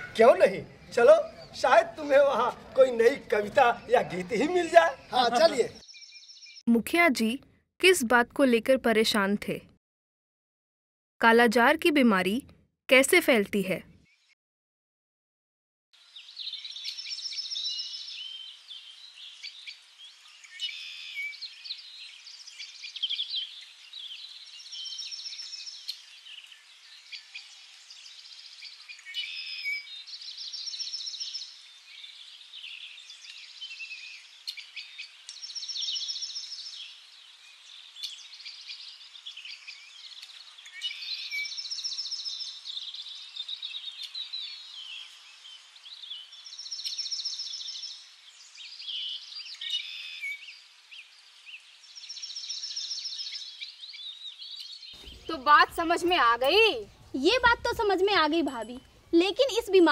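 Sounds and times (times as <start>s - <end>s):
high bird chirps: 3.6s - 6.7s, 16.2s - 19.8s, 20.4s - 51.2s, 51.9s - 59.0s.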